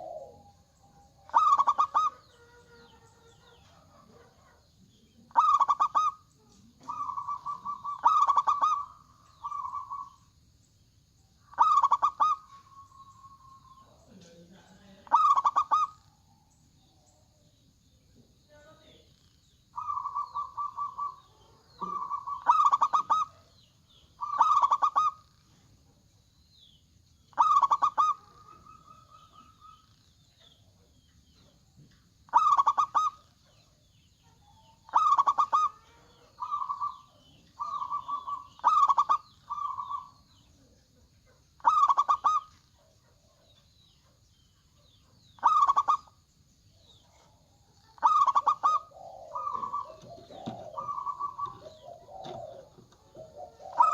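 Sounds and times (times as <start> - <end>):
doves cooing: 0.0 - 10.4, 11.5 - 16.4, 18.9 - 25.6, 27.3 - 31.5, 32.2 - 40.8, 41.6 - 43.4, 44.9 - 46.2, 47.0 - 53.9
faint high chirps: 0.0 - 53.9.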